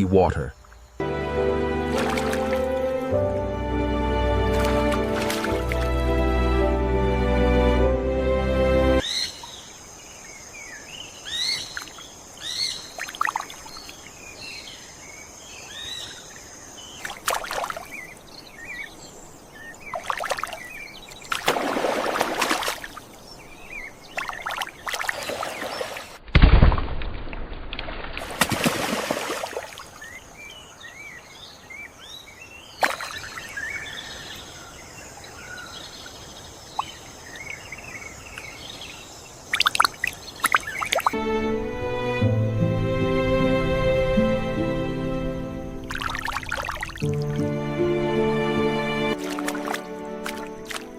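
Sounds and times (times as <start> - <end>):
small birds chirping: 9.0 - 21.5, 22.8 - 26.1, 29.7 - 41.2.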